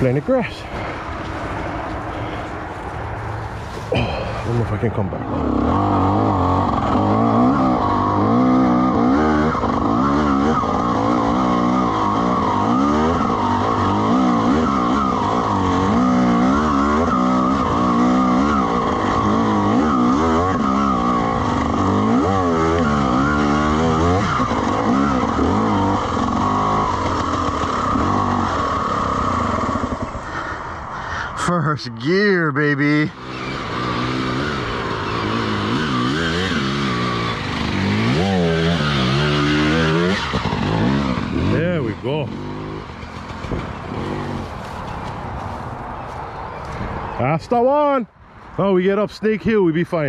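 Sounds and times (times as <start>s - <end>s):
dirt bike engine revving: 3.8s - 30.8s, 32.9s - 45.6s.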